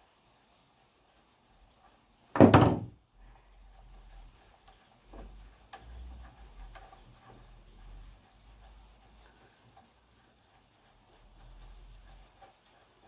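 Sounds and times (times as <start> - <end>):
loud clunk and clatter: 2.4 - 2.9.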